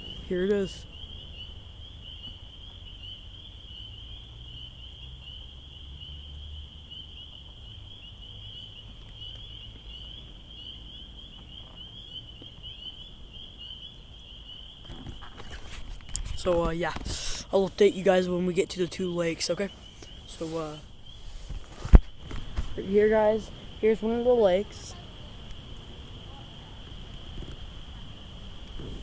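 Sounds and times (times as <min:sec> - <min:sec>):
insects trilling: 0:00.0 - 0:29.0
wind rumble on microphone: 0:24.5 - 0:29.0.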